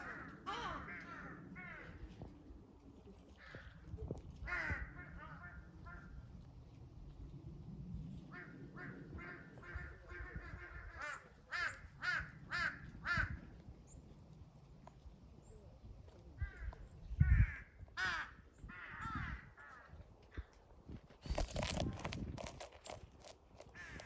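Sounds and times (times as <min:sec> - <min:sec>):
crows cawing: 0:00.0 - 0:02.0, 0:17.2 - 0:19.9.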